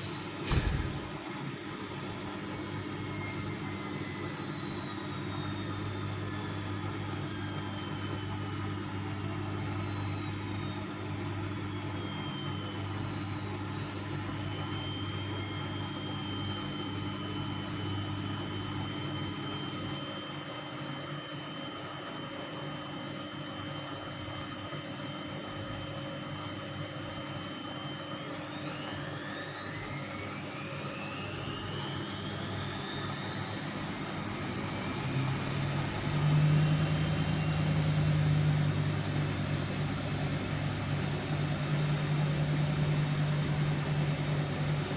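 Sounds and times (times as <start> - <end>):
washing machine drum spinning: 0.0 - 1.3, 34.7 - 44.9.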